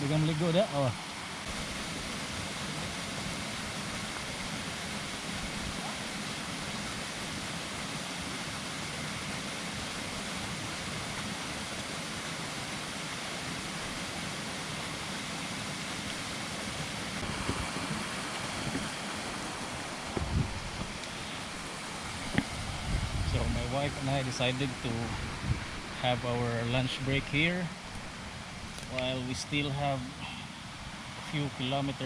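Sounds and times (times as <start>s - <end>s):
waterfall rushing: 0.0s - 32.0s
low bumps: 19.9s - 21.0s.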